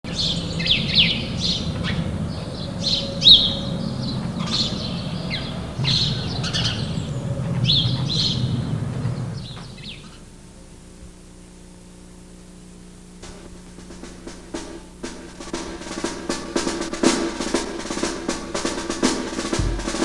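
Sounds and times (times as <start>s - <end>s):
birds chirping and singing: 0.0s - 10.3s
low background rumble: 0.0s - 20.0s.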